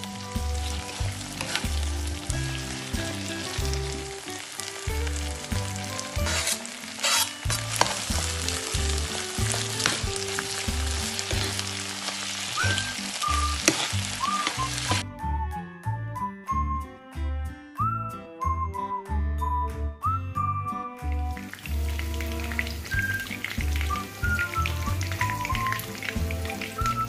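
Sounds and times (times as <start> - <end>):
food sizzling in a frying pan: 0.0 - 15.0, 21.3 - 27.0
spatula scraping a pan: 0.8 - 1.9, 5.9 - 11.8, 13.6 - 15.0
music with repeating bass: 7.5 - 11.6.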